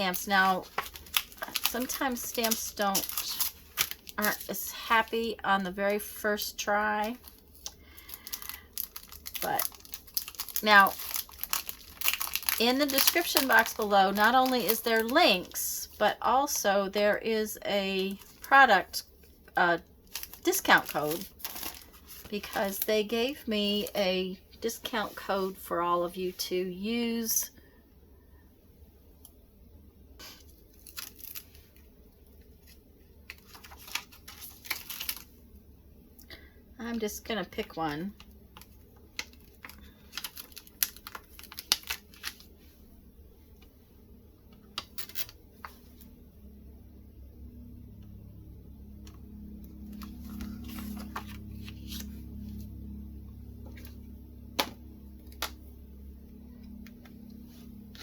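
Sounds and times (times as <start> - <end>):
packaging rustling: 0.0 - 15.6, 20.0 - 22.9, 30.7 - 31.9, 32.6 - 35.4, 38.6 - 42.6, 49.8 - 52.2.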